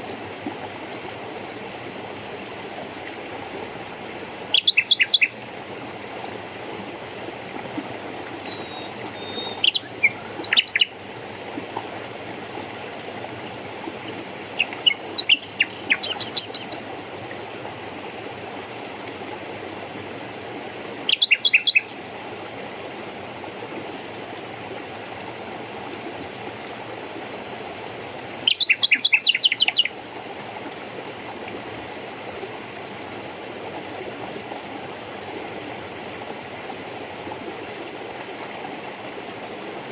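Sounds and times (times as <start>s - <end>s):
running water rushing: 0.0s - 39.9s
songbird calls: 2.4s - 5.4s, 8.4s - 10.9s, 14.1s - 16.9s, 19.4s - 22.0s, 26.4s - 30.0s.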